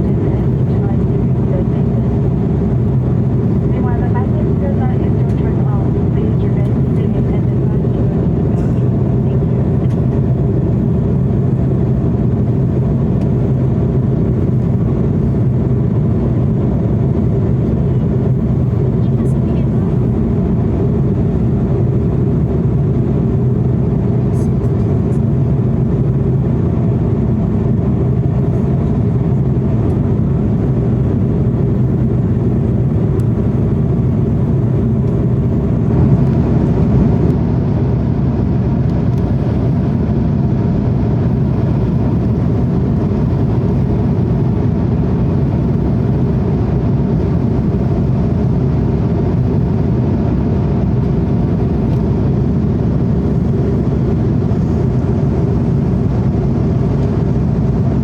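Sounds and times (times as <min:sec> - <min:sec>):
airliner cabin drone: 0:00.0 - 0:58.0.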